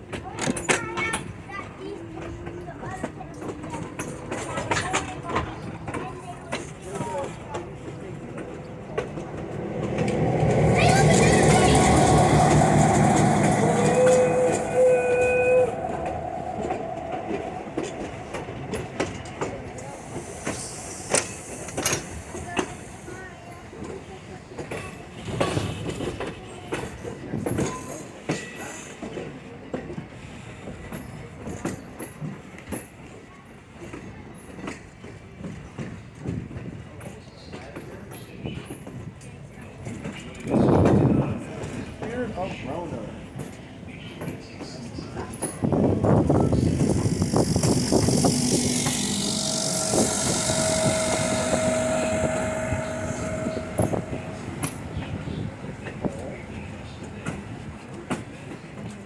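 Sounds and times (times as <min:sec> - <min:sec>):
railcar rumble: 0:00.0 - 0:59.0
train wheels clacking over rail joints: 0:00.0 - 0:59.0
high wheel squeaks: 0:06.6 - 0:23.6, 0:44.6 - 0:57.6
thin steady whine: 0:45.7 - 0:57.4.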